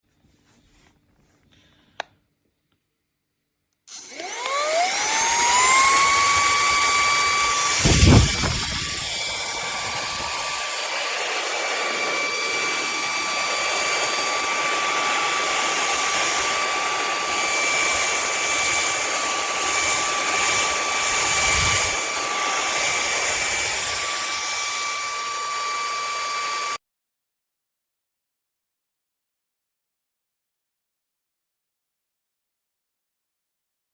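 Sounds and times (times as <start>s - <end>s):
handheld vacuum cleaner whine: 3.9s - 26.8s.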